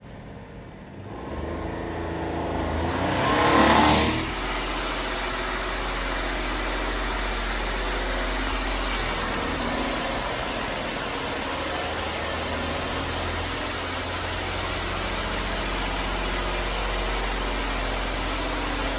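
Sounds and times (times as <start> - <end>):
truck engine revving: 0.0 - 18.9.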